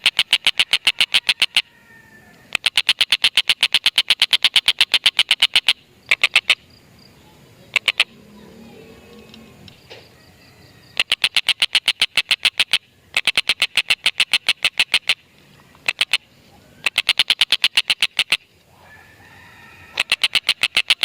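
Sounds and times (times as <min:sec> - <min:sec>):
bird rapid chattering call: 0:00.0 - 0:01.6, 0:02.5 - 0:06.8, 0:07.6 - 0:08.5, 0:10.8 - 0:18.5, 0:19.9 - 0:21.0.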